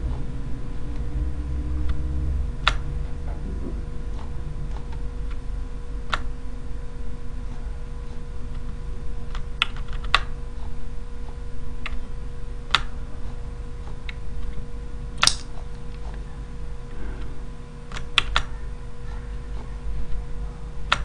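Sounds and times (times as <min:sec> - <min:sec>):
steady low hum: 0:00.0 - 0:21.0
computer keys clicking: 0:09.3 - 0:10.3, 0:15.2 - 0:16.0, 0:17.9 - 0:18.5.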